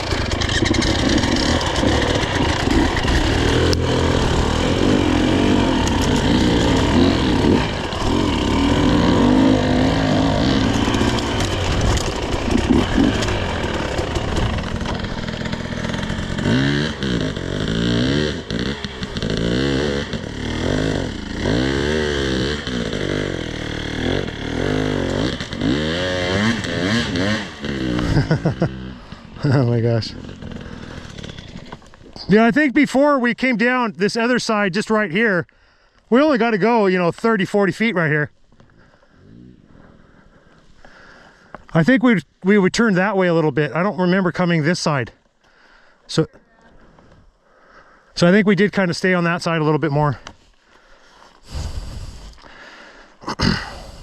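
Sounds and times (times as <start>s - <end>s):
dirt bike engine revving: 0.0s - 32.5s.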